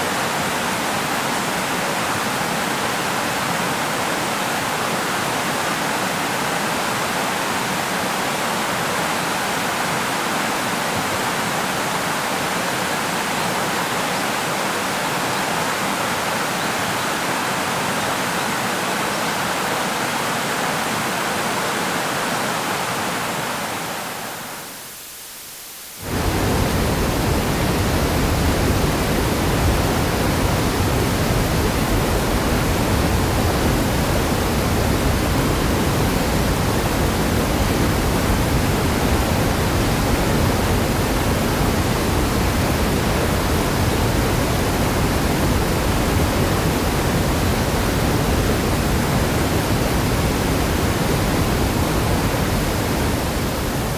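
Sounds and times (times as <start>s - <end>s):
deep rumbling river: 26.0s - 53.9s
river water rushing: 26.0s - 53.9s.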